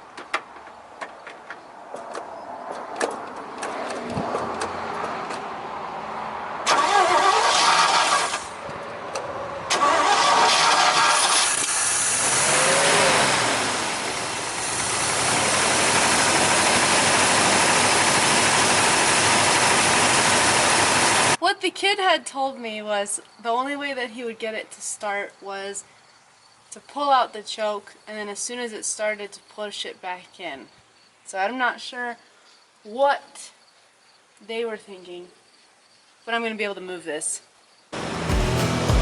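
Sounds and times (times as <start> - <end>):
starter cranking engine: 6.7 - 8.5, 9.7 - 21.4
truck engine running: 9.8 - 21.4, 38.0 - 39.0.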